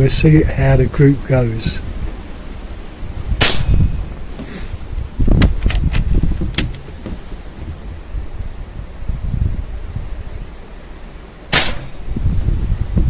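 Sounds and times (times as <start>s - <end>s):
wind buffeting microphone: 0.0s - 13.0s
air rifle shot: 3.4s - 4.2s, 11.5s - 12.2s.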